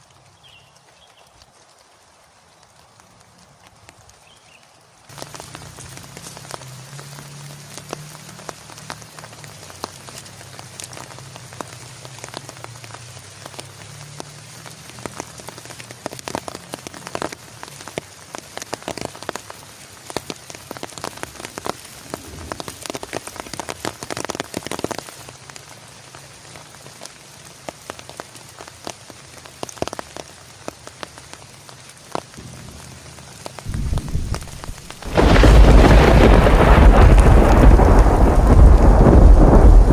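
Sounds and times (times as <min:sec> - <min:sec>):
heavy rain: 0:00.0 - 0:39.9
thunder rumble: 0:21.6 - 0:23.7, 0:32.4 - 0:39.9.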